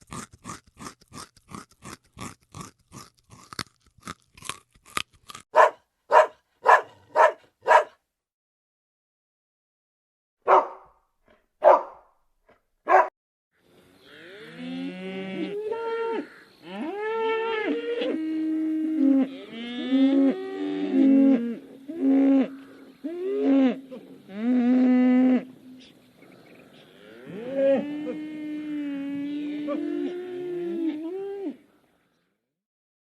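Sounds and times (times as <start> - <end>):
dog barks: 5.5 - 8.0, 10.4 - 11.0, 11.6 - 12.1, 12.8 - 13.1
cattle mooing: 14.0 - 31.2.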